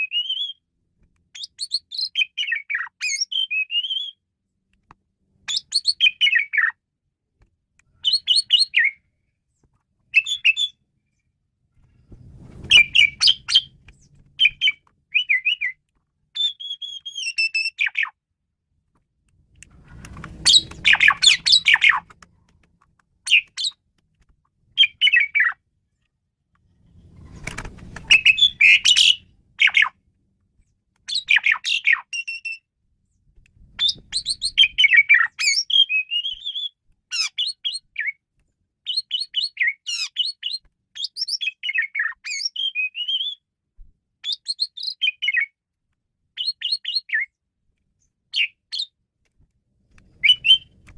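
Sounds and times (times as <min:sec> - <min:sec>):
starling whistling and chattering: 0:12.7 - 0:13.7, 0:14.4 - 0:15.8, 0:20.4 - 0:22.0, 0:28.1 - 0:29.9, 0:33.8 - 0:38.2, 0:50.2 - 0:50.7.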